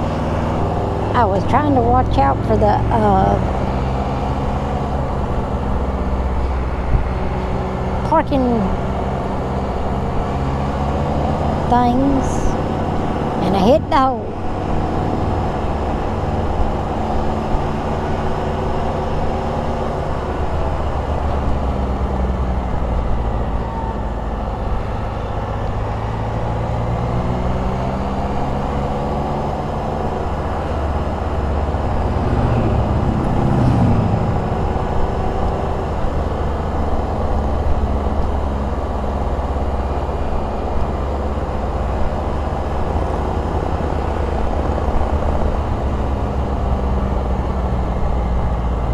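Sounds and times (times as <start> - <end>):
road and wind noise: 0.0 - 48.9
three-cylinder engine running: 0.0 - 48.9.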